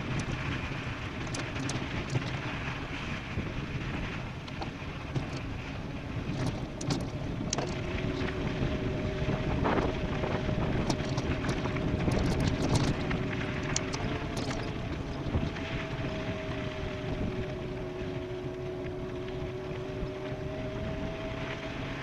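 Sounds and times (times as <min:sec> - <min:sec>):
bike tyres rolling: 0:00.0 - 0:21.5
wind rushing over microphone: 0:00.0 - 0:22.0
two-tone whine: 0:06.3 - 0:22.0
sharp ticks: 0:10.9 - 0:14.7.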